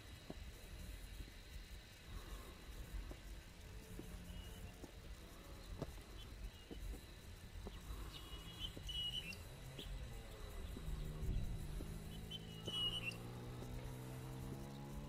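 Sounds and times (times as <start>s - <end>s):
faint low hum: 0.0s - 15.0s
bird chirping: 4.1s - 7.0s, 7.6s - 15.0s
footsteps on stone steps: 4.8s - 5.1s, 5.7s - 9.0s, 10.6s - 12.9s.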